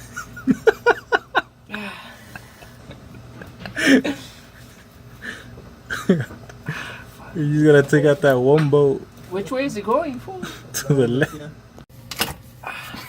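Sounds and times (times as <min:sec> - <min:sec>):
person laughing: 0:00.0 - 0:07.0.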